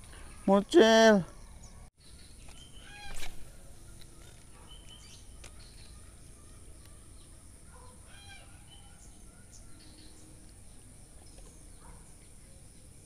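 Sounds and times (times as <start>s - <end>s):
bird calls and chirps: 1.2s - 13.0s.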